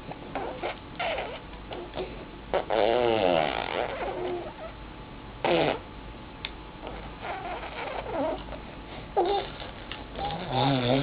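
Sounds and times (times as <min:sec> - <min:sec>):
baby blowing raspberries: 0:00.3 - 0:04.6, 0:05.4 - 0:05.8, 0:06.8 - 0:08.5, 0:09.2 - 0:11.0.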